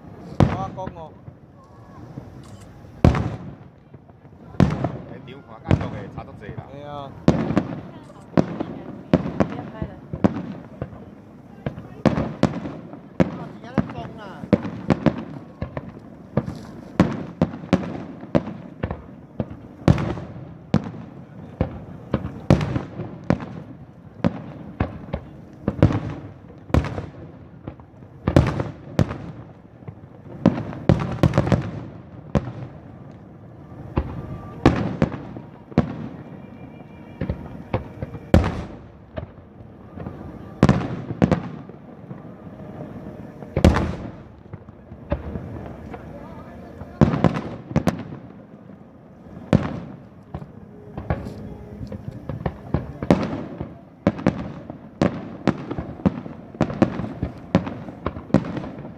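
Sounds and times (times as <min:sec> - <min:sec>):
fireworks shells bursting: 0:01.6 - 0:03.6, 0:11.7 - 0:20.9.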